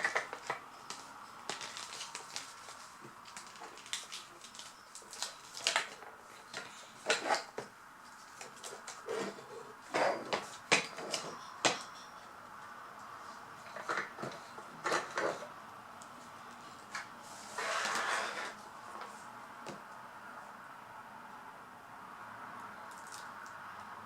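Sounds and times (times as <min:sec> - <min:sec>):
packaging rustling: 0:00.0 - 0:07.5.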